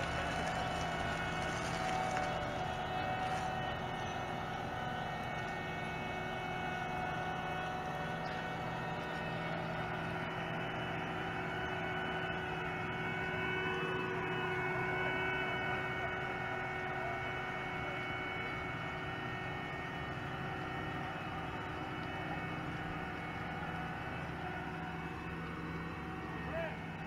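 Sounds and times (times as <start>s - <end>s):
diesel drone of asphalt paver: 0.0s - 27.0s
steady whining tones: 0.0s - 27.0s.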